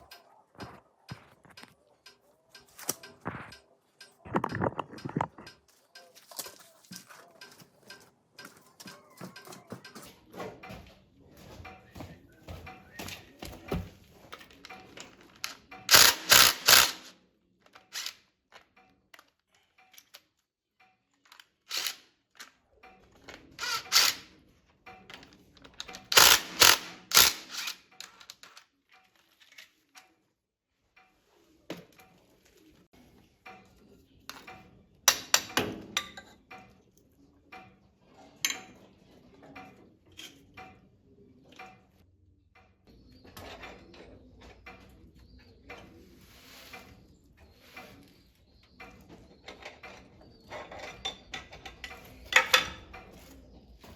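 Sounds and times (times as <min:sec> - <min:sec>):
metal tools clinking and knocking: 0:14.2 - 0:17.1, 0:17.9 - 0:18.2, 0:21.3 - 0:22.0, 0:25.0 - 0:28.6.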